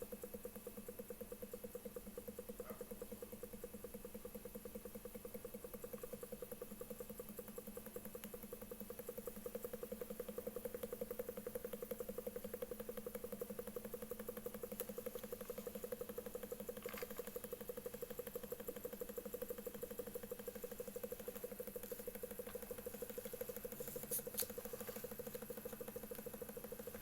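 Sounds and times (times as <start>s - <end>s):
small engine ticking: 0.0s - 27.0s
generator hum: 9.1s - 27.0s.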